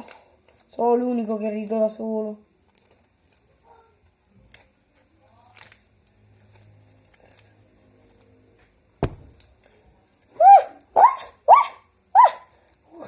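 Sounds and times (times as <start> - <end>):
sharp knock: 9.0 - 9.4.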